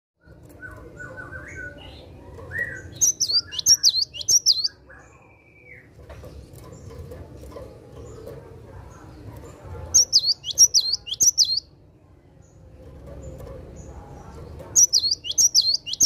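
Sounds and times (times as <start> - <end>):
soft bird chirps: 0.2 - 11.7, 12.3 - 16.0
bird whistling song: 2.6 - 5.9, 10.0 - 11.7, 14.8 - 16.0.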